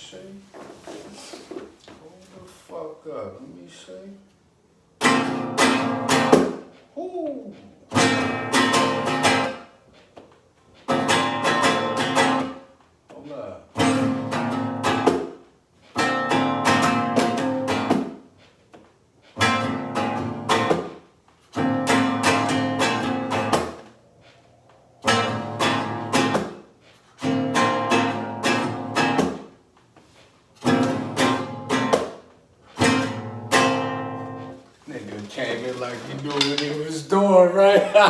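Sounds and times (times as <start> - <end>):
acoustic guitar strumming chords: 5.0 - 6.6, 7.9 - 9.7, 10.9 - 12.6, 13.8 - 15.3, 16.0 - 18.1, 19.4 - 21.0, 21.6 - 23.8, 25.0 - 26.6, 27.2 - 29.5, 30.6 - 32.1, 32.8 - 34.6.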